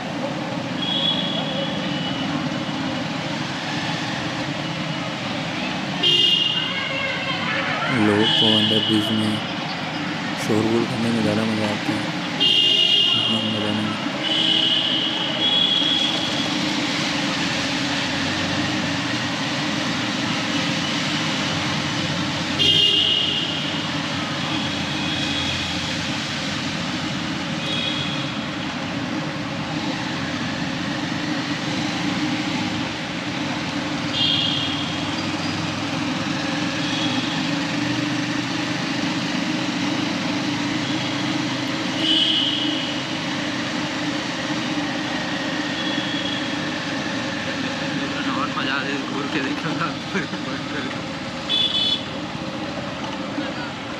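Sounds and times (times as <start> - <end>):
road noise: 0.0 - 53.9
vehicle horns honking: 0.8 - 2.2, 6.0 - 7.5, 12.4 - 16.3, 22.6 - 23.8, 27.6 - 28.4, 34.1 - 35.1, 42.0 - 43.0, 51.5 - 52.2.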